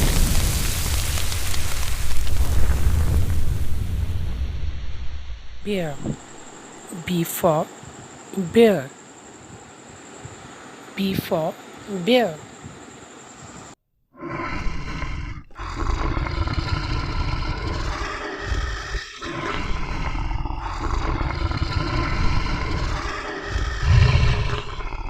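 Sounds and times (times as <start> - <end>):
bear growling and roaring: 14.1 - 25.0.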